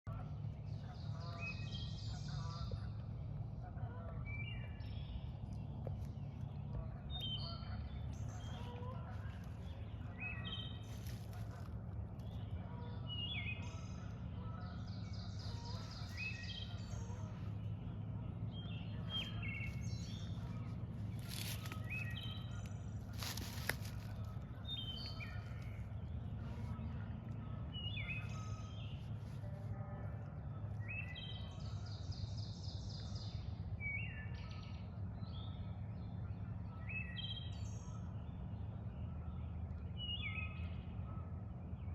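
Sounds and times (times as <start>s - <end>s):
songbirds singing: 0.0s - 41.9s
steady low rumble: 0.0s - 41.9s
rustling: 23.1s - 24.4s.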